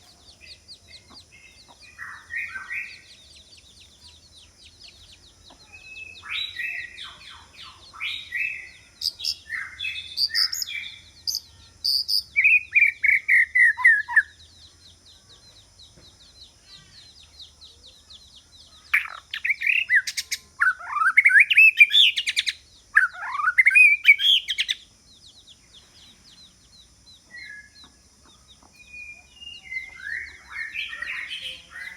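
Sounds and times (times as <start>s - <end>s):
bird singing whistled phrases: 5.6s - 14.4s, 18.9s - 24.8s, 28.8s - 31.9s.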